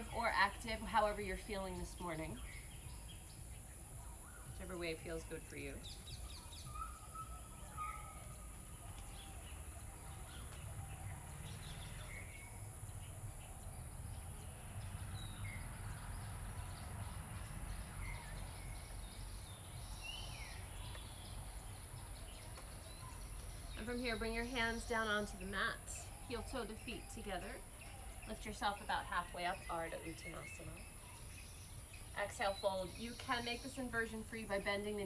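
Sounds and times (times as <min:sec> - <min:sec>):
faint bird chirps: 0:02.3 - 0:13.6.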